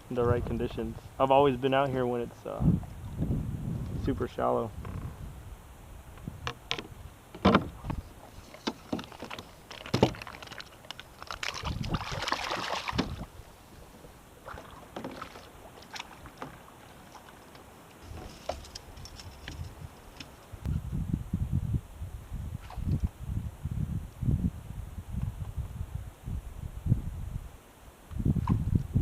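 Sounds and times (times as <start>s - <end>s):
paddle knocking against hull: 6.4s - 10.6s, 11.4s - 13.3s, 14.4s - 16.6s
paddle strokes swishing water: 7.8s - 18.7s.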